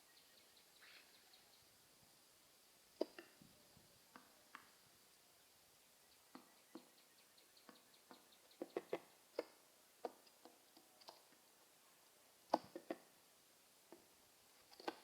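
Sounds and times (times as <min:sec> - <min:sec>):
pigeons tapping and clicking: 0:07.6 - 0:11.3.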